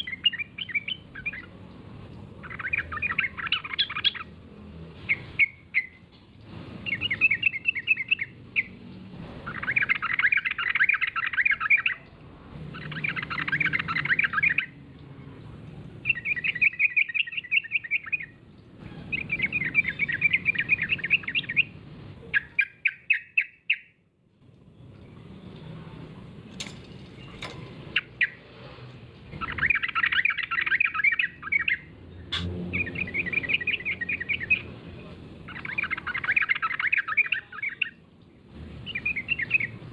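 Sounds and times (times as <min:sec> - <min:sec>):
bulbul chattering song: 0:00.0 - 0:06.1, 0:06.8 - 0:15.1, 0:16.0 - 0:24.0, 0:29.3 - 0:39.9.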